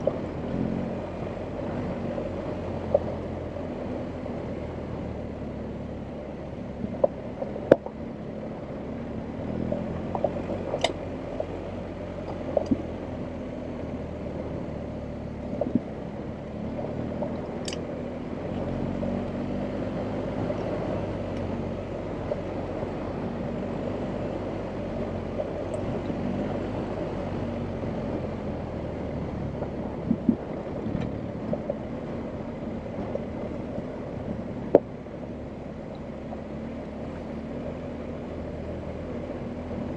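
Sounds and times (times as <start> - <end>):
sharp knocks and clicks: 12.2 - 12.9.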